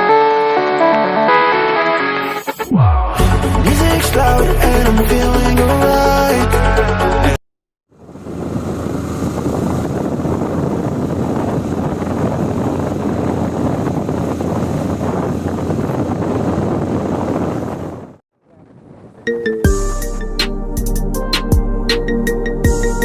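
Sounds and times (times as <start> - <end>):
wind rushing over microphone: 7.9 - 19.4.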